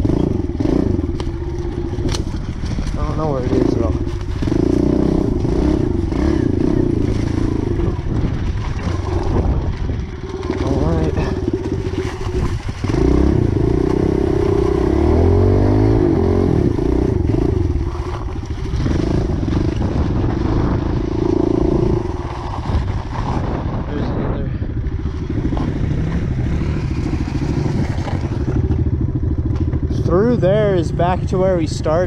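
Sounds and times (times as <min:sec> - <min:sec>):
small motorbike engine revving: 0:00.0 - 0:09.6, 0:10.2 - 0:23.6.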